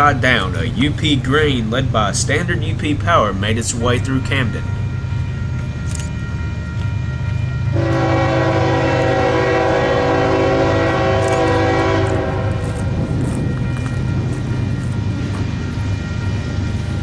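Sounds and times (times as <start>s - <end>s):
diesel engines rumbling: 0.0s - 17.0s
locomotive air horn blast: 7.7s - 13.6s.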